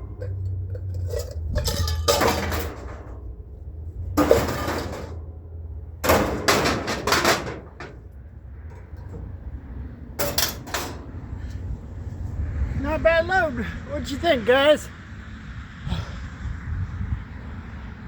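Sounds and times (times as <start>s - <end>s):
scrap metal clanging: 0.0s - 9.4s, 10.2s - 11.2s.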